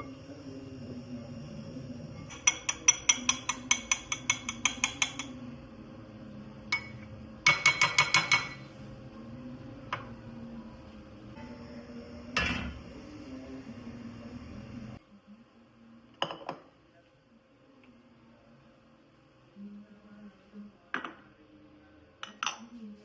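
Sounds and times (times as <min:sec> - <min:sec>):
faint steady hum: 0:00.0 - 0:23.0
utensil clinking on dish: 0:02.3 - 0:05.4.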